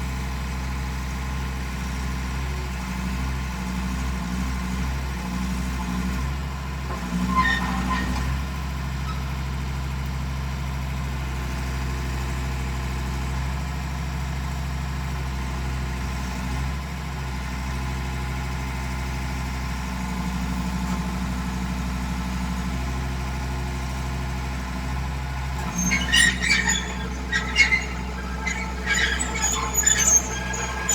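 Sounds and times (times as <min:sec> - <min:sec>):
metallic squeaks and knocks: 0:07.2 - 0:09.2, 0:25.6 - 0:30.9
diesel engine running: 0:21.2 - 0:30.9.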